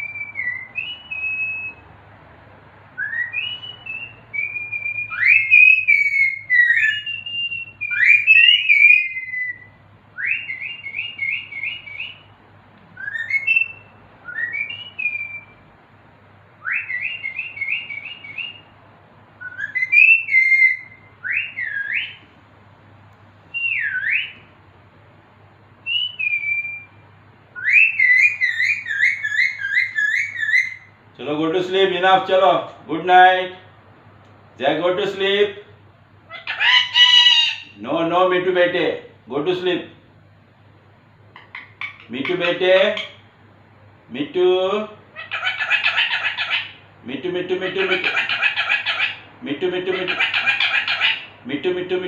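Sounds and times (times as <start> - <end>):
parrot whistling: 0.0 - 1.8, 3.0 - 12.3, 13.0 - 15.6, 16.6 - 18.7, 19.4 - 22.2, 23.5 - 24.5, 25.8 - 31.0, 36.3 - 37.8, 41.3 - 43.3, 45.1 - 46.9, 47.6 - 51.4.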